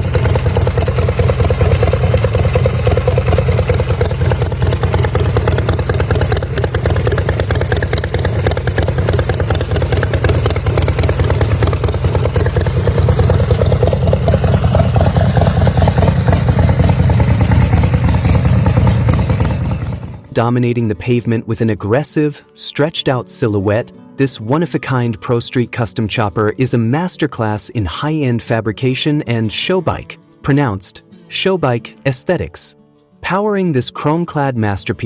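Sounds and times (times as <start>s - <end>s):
motorcycle v-twin engine running: 0.0s - 20.4s.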